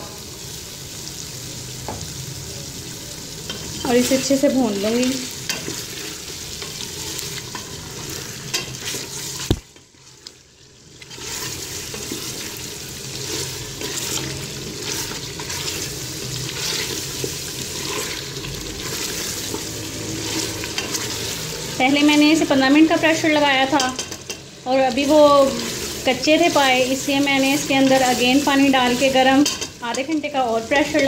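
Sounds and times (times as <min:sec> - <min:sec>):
meat sizzling in oil: 0:00.0 - 0:31.0
wooden spoon scraping pot: 0:05.5 - 0:10.2, 0:11.0 - 0:21.3.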